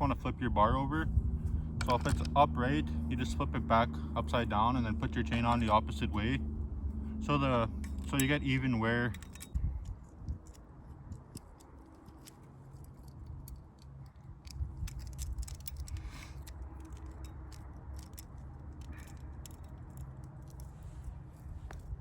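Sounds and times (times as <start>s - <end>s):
chainsaw chain links rattling: 7.2s - 21.9s.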